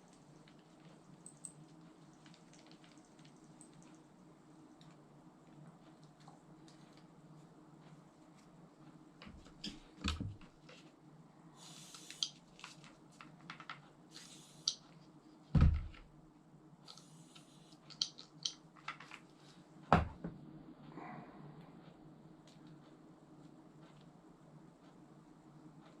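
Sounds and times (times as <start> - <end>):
short hissing bursts: 11.6 - 12.4, 14.1 - 14.8.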